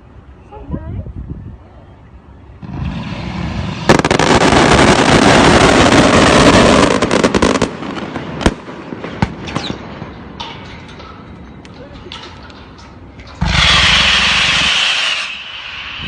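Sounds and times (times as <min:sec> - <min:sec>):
firecrackers crackling bangs: 0:02.6 - 0:11.4, 0:12.6 - 0:16.0
firecracker fuse hissing: 0:02.8 - 0:06.9, 0:13.4 - 0:16.0.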